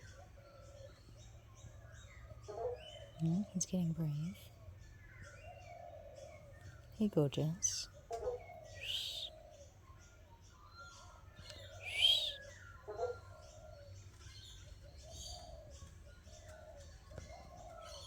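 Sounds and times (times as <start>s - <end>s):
soft low bird calls: 0.0s - 18.0s
loud high sweeping bird calls: 8.3s - 9.7s, 11.4s - 13.2s.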